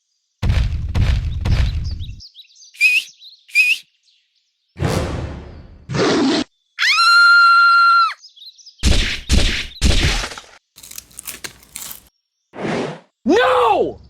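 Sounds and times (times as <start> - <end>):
crackling: 10.8 - 12.1.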